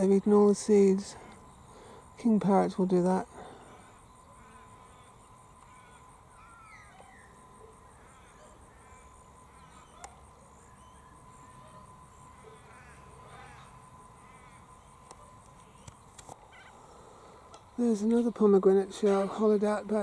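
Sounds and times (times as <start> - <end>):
faint steady tone: 0.0 - 20.0
insect trill: 0.0 - 20.0
small birds chirping: 0.0 - 20.0.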